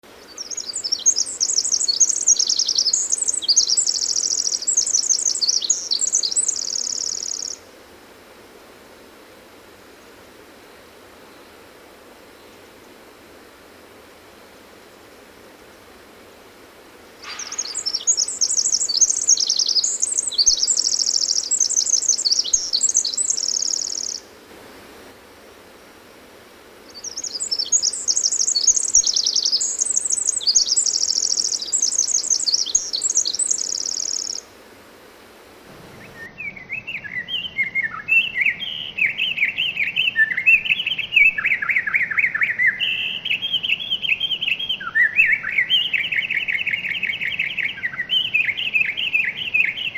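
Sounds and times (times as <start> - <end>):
wren singing high trills: 0.2 - 7.6, 17.2 - 24.3, 26.9 - 34.5.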